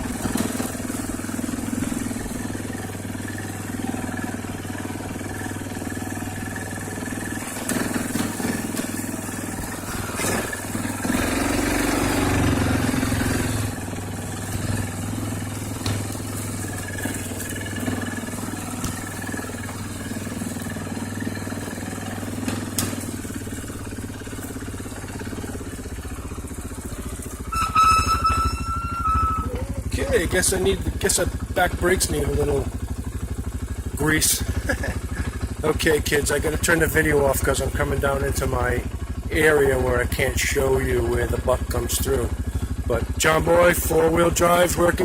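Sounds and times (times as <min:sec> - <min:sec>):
atv engine running: 0:00.0 - 0:45.0
brakes squealing: 0:00.0 - 0:45.0.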